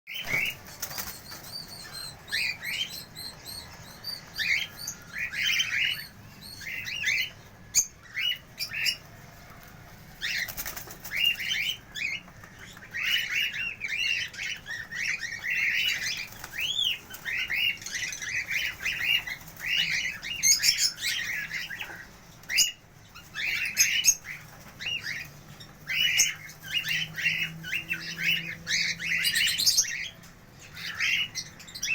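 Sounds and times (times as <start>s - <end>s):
cockatiels chirping: 0.2s - 9.0s, 10.2s - 31.9s.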